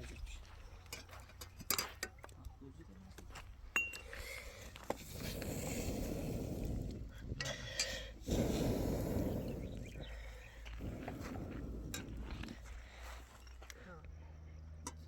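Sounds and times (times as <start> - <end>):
low steady rumble: 5.3 - 14.8.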